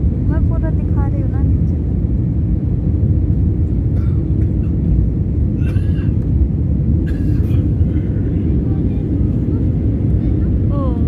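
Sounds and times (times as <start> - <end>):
airliner cabin engine rumble: 0.0 - 11.0
faint voices: 7.5 - 11.0.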